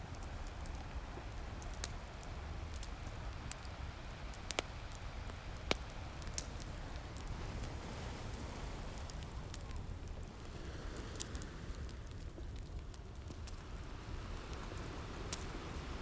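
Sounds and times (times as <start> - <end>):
wood fire crackling and popping: 0.0 - 16.0
ocean waves: 6.1 - 12.6, 13.5 - 16.0.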